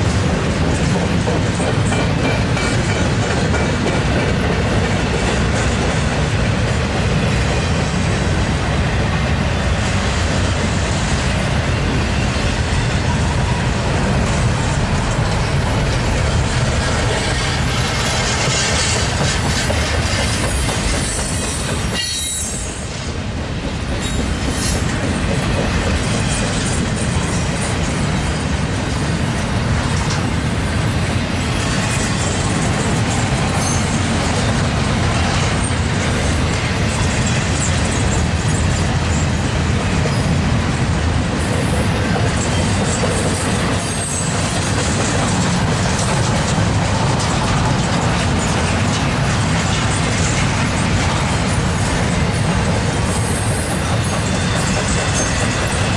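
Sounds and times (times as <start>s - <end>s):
freight train rumbling on rails: 0.0s - 55.9s.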